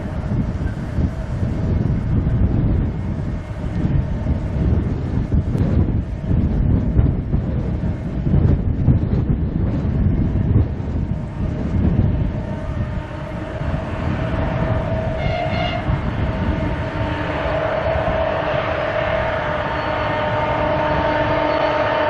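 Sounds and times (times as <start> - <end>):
diesel locomotive engine rumbling: 0.0 - 22.0.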